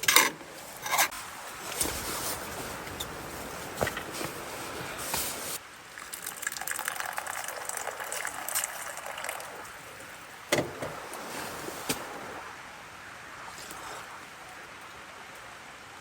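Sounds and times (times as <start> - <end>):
water pouring: 0.8 - 12.4, 13.4 - 14.3
splashy crackles: 10.8 - 12.5.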